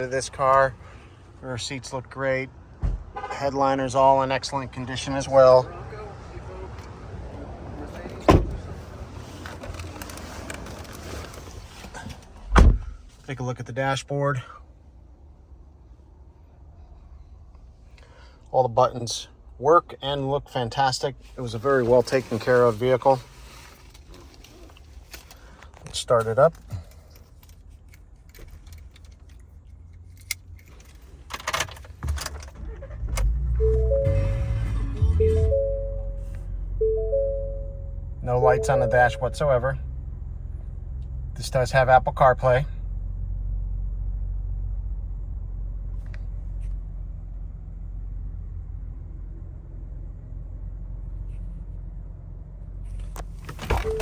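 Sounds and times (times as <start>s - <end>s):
car engine starting and idling: 21.2s - 54.0s
dashboard chime tone: 33.6s - 39.7s.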